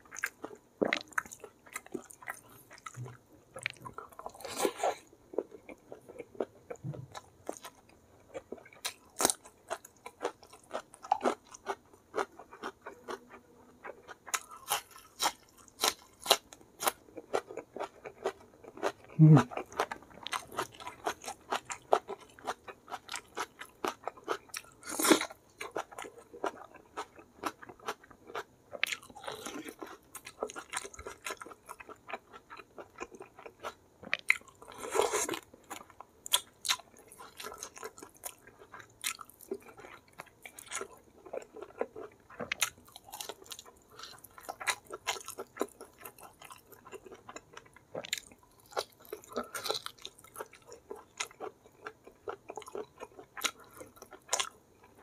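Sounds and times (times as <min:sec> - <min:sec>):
chewing and lip-smacking: 0:00.0 - 0:55.0.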